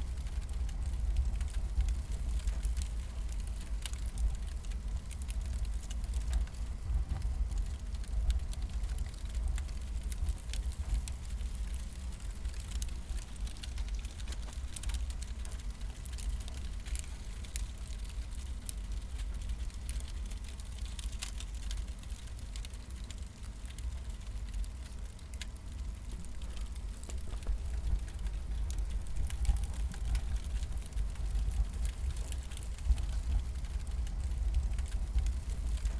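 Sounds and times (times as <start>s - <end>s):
campfire crackling and popping: 0.0s - 35.9s
low rumble: 25.8s - 35.9s.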